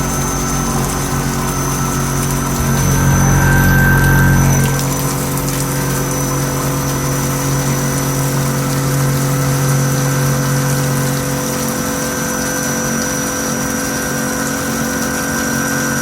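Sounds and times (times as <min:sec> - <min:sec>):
washing machine motor humming: 0:00.0 - 0:05.7.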